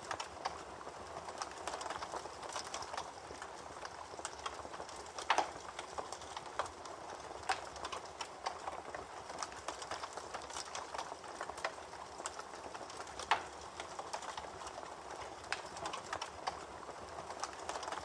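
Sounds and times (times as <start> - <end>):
rain hissing: 0.0 - 18.0.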